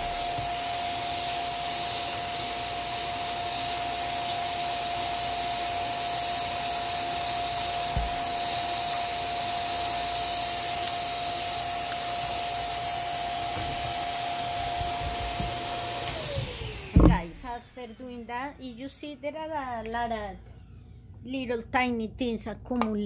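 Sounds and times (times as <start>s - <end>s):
small electric motor whining: 0.0s - 18.8s.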